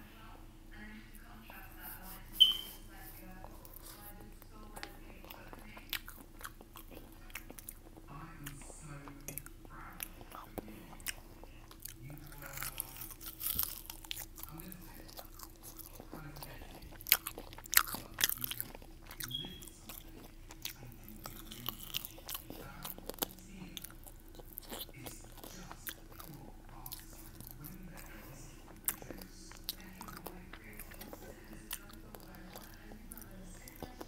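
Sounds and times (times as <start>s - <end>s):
person chewing with crisp crunches: 1.5s - 34.0s.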